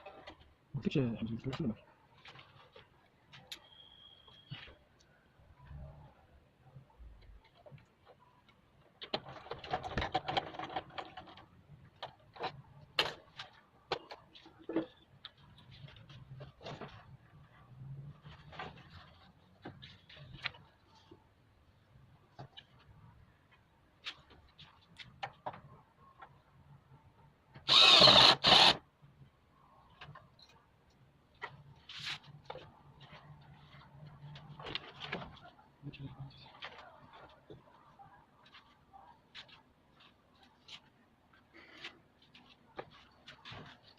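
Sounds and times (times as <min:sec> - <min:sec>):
power drill running: 0:27.7 - 0:28.8.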